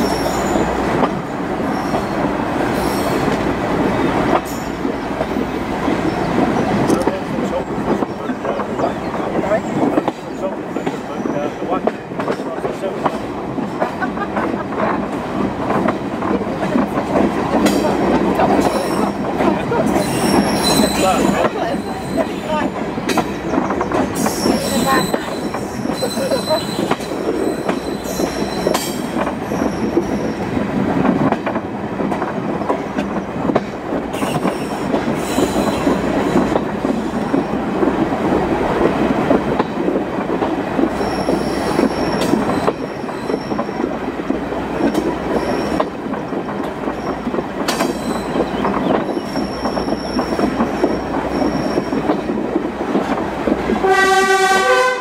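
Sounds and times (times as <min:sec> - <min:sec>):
train rolling rumble: 0:00.0 - 0:55.0
knocks from the rails: 0:47.6 - 0:49.1.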